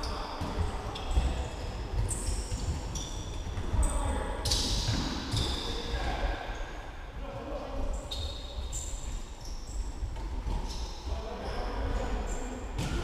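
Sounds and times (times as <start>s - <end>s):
shoes squeaking on hard floor: 0.1s - 5.9s.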